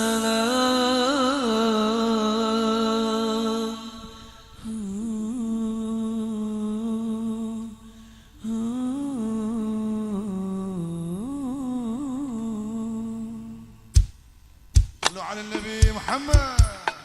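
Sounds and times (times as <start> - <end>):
sharp click: 14.8 - 15.2.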